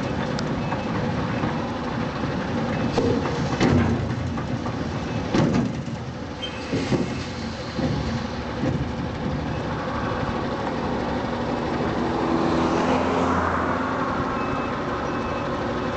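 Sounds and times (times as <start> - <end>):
diesel truck engine running: 0.0 - 15.9
clanks and knocks: 2.8 - 6.1, 6.7 - 9.4.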